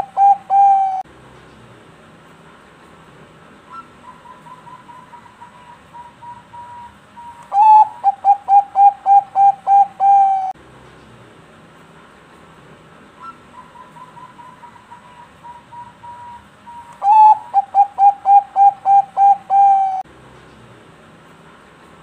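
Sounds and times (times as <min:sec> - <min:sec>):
dove cooing: 0:00.0 - 0:01.0, 0:03.7 - 0:10.6, 0:13.2 - 0:20.0
dove singing: 0:00.0 - 0:01.6, 0:03.7 - 0:10.6, 0:13.1 - 0:20.6.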